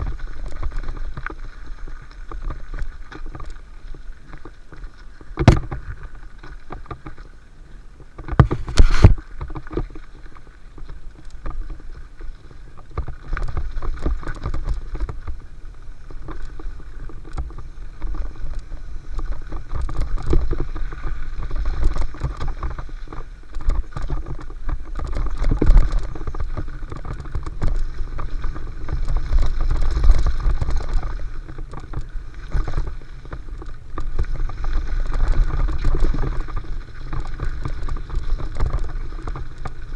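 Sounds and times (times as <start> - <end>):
wind and tyre rumble: 0.0 - 39.9
sharp knocks over bumps: 5.4 - 5.8
bike rattling: 5.4 - 6.0, 8.3 - 9.5.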